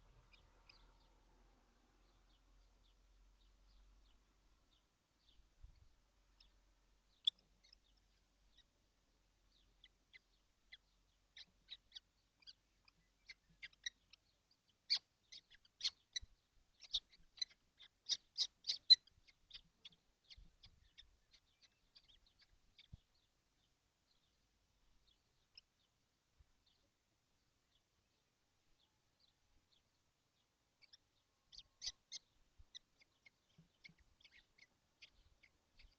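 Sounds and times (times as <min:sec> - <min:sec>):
young kestrels calling: 0:00.0 - 0:01.2, 0:02.0 - 0:26.0, 0:27.7 - 0:35.9.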